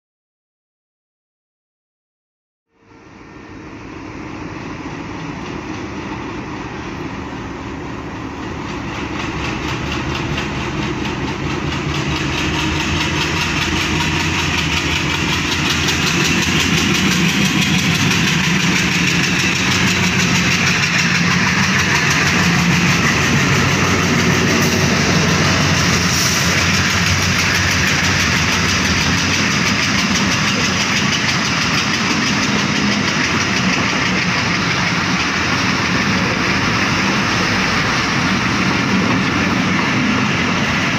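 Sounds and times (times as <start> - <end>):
diesel locomotive engine: 2.7 - 40.9
train wheels rumbling on rails: 2.8 - 40.9.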